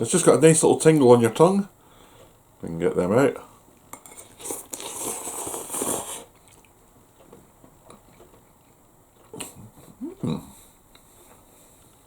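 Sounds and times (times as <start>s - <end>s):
noodles being slurped: 4.3s - 6.7s
chewing with mouth clicks: 6.3s - 6.8s.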